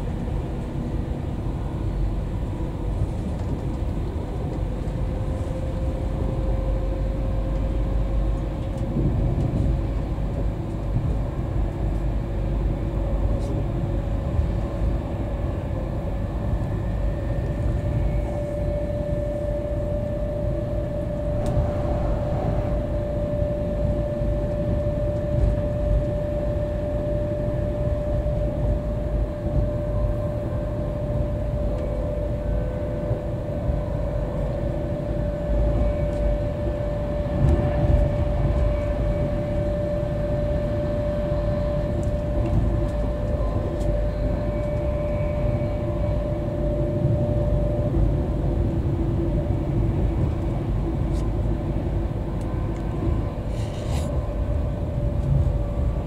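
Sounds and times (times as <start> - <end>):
train wheels rumbling on track: 0.0 - 56.0
steady mid-pitched tone: 20.6 - 25.1.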